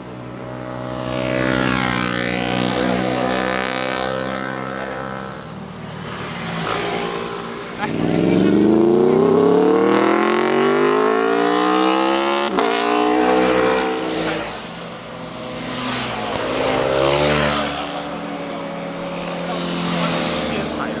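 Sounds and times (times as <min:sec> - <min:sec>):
motorcycle engine revving: 0:00.2 - 0:21.0.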